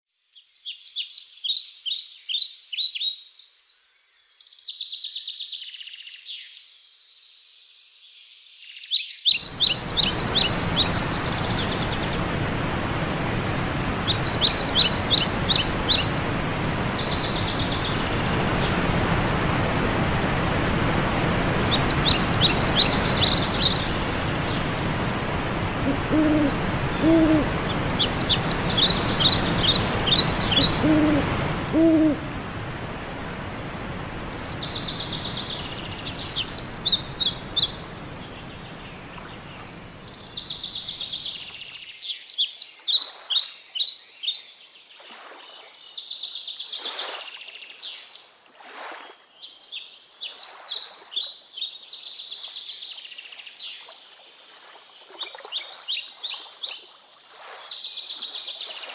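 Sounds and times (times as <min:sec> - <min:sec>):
songbirds trilling: 0:09.3 - 0:19.4, 0:20.3 - 0:41.8
running water: 0:09.4 - 0:41.6
low hoots: 0:23.4 - 0:33.4.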